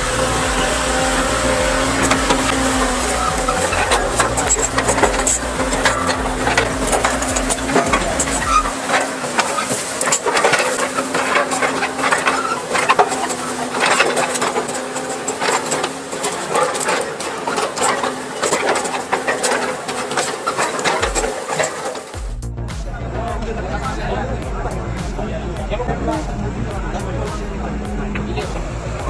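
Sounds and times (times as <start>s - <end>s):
deep rumble: 0.0s - 8.7s, 22.2s - 29.0s
machine engine running: 0.0s - 29.0s.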